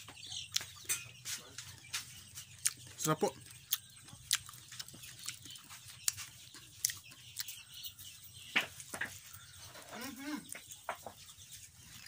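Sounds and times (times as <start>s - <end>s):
close-up chewing meat: 1.5s - 8.1s, 10.7s - 12.0s.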